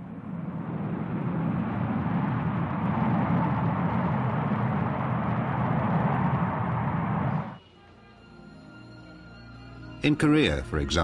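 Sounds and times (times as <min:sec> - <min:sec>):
aircraft engines rumbling: 0:00.0 - 0:07.6.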